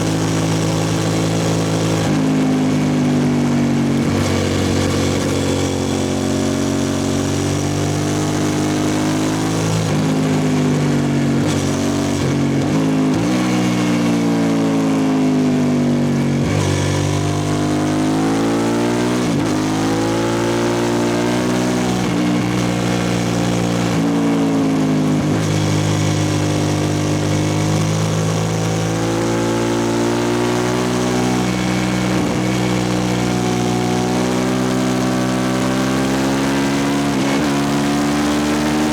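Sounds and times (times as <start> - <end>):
loud motorcycle engine revving: 0.0 - 38.9.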